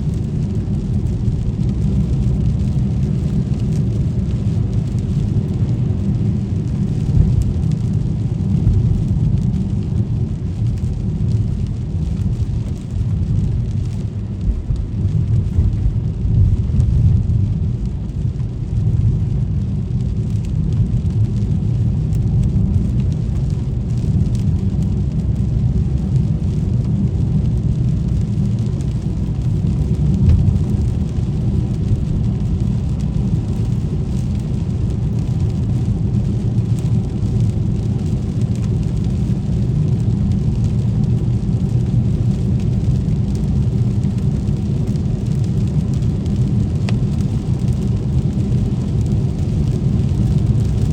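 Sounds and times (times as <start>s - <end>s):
car driving rumble: 0.0s - 50.9s
rain hiss and ticks: 0.0s - 50.9s.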